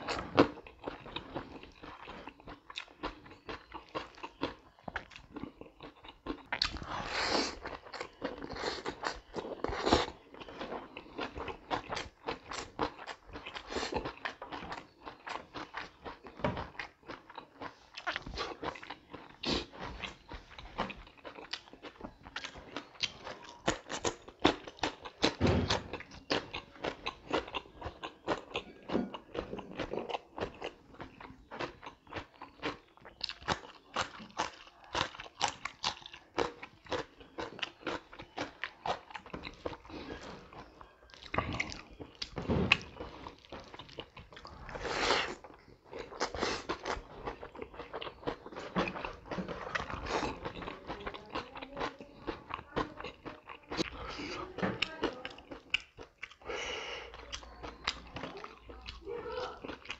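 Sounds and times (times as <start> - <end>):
chewing and crunching food: 0.0 - 59.9.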